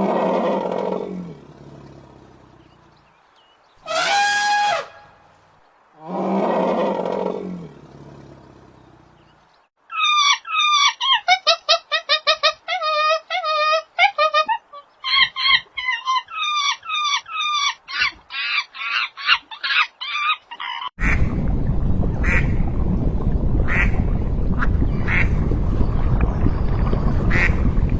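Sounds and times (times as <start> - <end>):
ducks quacking: 20.6 - 21.3, 22.2 - 22.6, 23.7 - 24.0, 24.6 - 25.4, 27.3 - 27.7.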